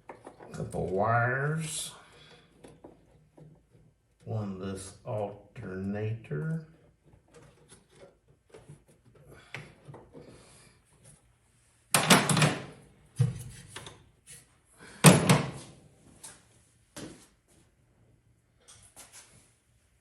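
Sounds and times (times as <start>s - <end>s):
tools tapping and scraping: 0.0s - 1.0s, 2.0s - 4.3s, 6.4s - 11.2s.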